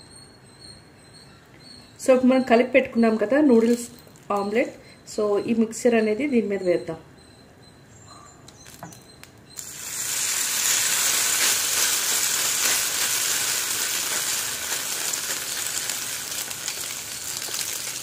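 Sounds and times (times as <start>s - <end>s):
batter sizzling in hot oil: 9.6s - 18.0s.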